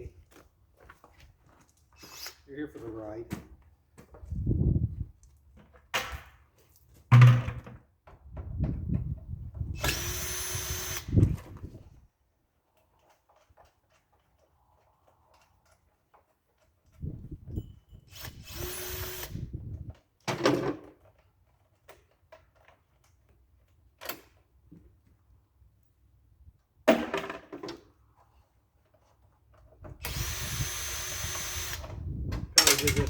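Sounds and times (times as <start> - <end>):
power drill running: 9.8 - 11.2, 18.1 - 19.4, 30.0 - 32.0
clunks of tools and parts: 29.8 - 33.0.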